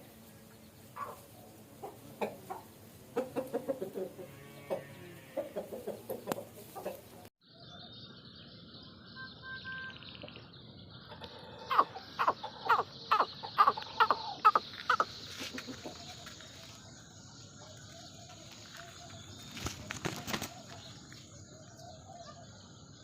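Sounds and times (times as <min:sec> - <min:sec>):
chickens clucking: 0:00.0 - 0:07.3, 0:11.0 - 0:16.8
brief rustle: 0:18.6 - 0:20.8.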